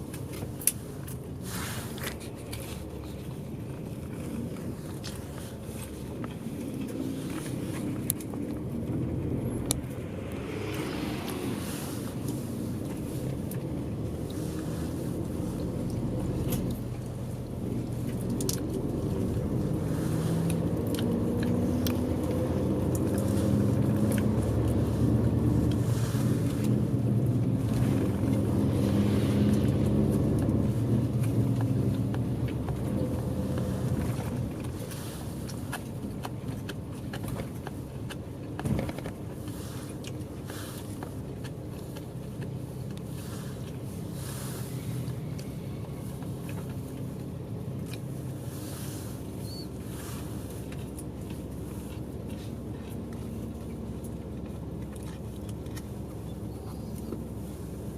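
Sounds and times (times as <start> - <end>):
bus engine from inside cabin: 0.0 - 57.9.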